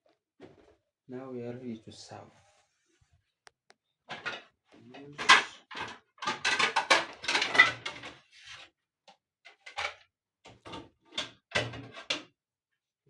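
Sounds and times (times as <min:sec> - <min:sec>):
dishes and utensils clattering: 0:04.1 - 0:08.2.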